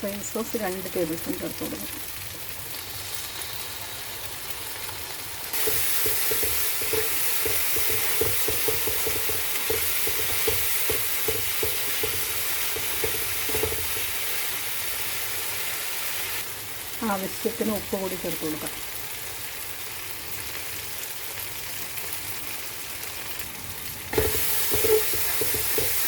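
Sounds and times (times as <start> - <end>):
food sizzling in a pan: 0.0 - 26.0
spoon stirring and scraping pan: 5.5 - 14.6, 24.2 - 26.0.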